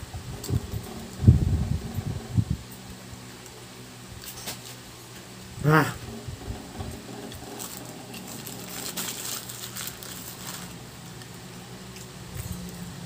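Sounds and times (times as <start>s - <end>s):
paper wrapper rustling: 7.4s - 10.8s.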